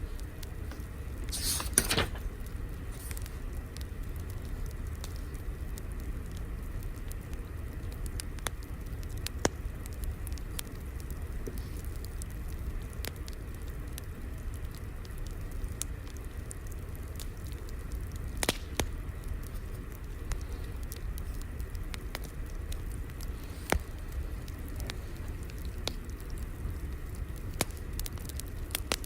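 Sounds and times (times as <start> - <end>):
fire crackling and popping: 0.0 - 29.0.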